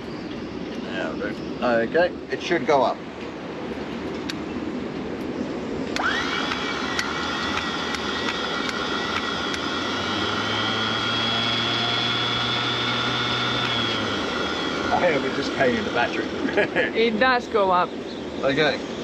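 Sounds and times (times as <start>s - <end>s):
electric motor whining: 5.9s - 16.6s.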